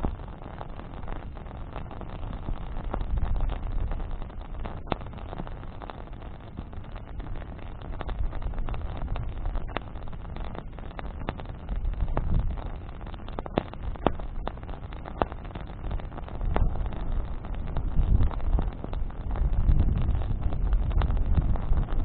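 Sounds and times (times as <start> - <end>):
campfire crackling and popping: 0.0 - 22.0
wind buffeting microphone: 11.8 - 12.6, 16.4 - 22.0.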